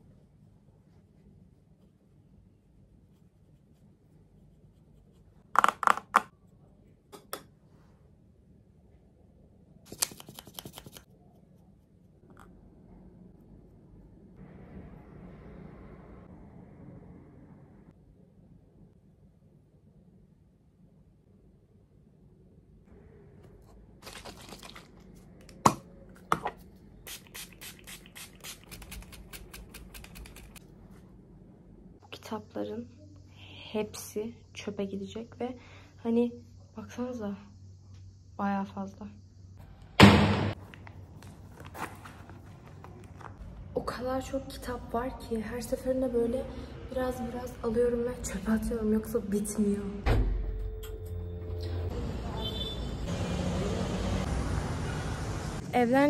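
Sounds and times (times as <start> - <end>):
pages rustling and tearing: 24.0 - 25.2, 40.6 - 43.4
paper crinkling: 24.0 - 25.3, 40.6 - 43.4.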